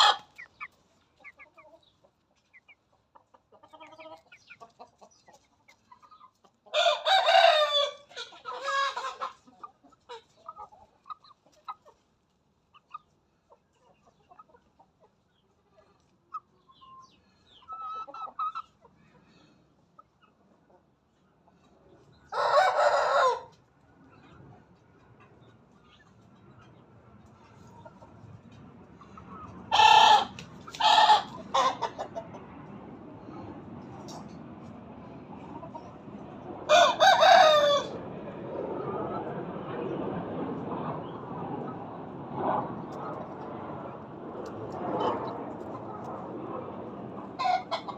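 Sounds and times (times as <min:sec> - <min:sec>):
hen clucking: 0:00.0 - 0:12.1, 0:12.7 - 0:19.2, 0:29.0 - 0:32.5, 0:47.2 - 0:47.9
hen crowing: 0:06.8 - 0:09.1, 0:29.7 - 0:31.9, 0:36.7 - 0:38.0.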